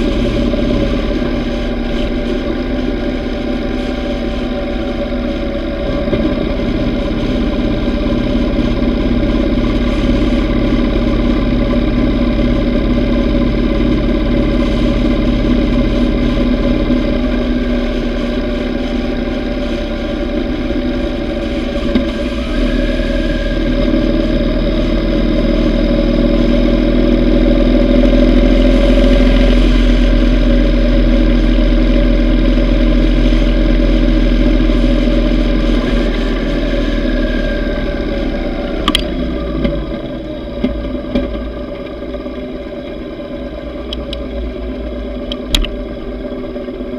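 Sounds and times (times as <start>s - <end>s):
motorcycle engine running: 0.0s - 46.9s
wind and road noise: 0.0s - 46.9s.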